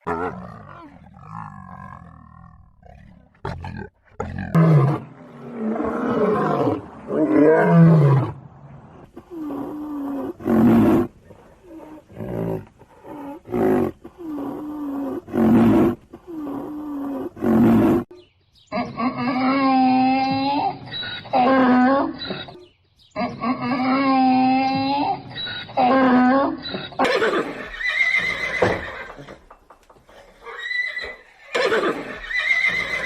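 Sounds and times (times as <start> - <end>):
lion roaring: 0.0 - 18.0.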